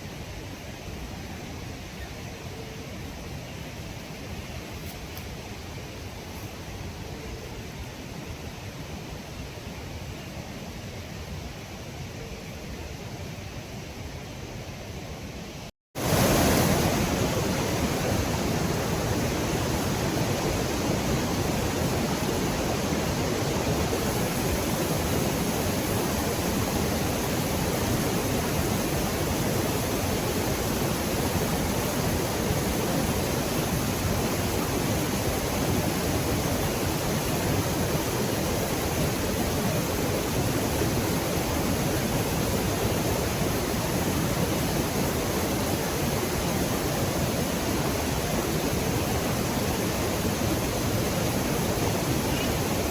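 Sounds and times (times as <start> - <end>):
waterfall rushing: 16.0 - 52.9.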